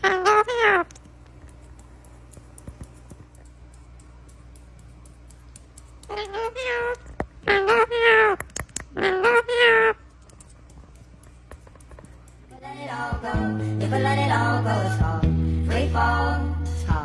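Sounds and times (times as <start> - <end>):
parrot meow-like calls: 0.0 - 0.9, 6.1 - 8.4, 9.0 - 10.0
room hum: 0.0 - 17.0.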